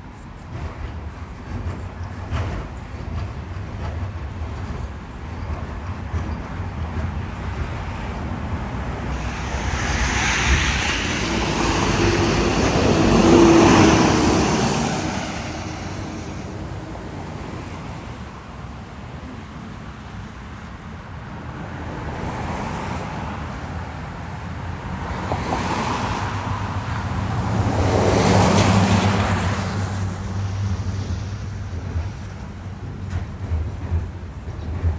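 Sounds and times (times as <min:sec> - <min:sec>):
low engine hum: 0:07.2 - 0:18.4
vehicles passing by: 0:07.2 - 0:18.8.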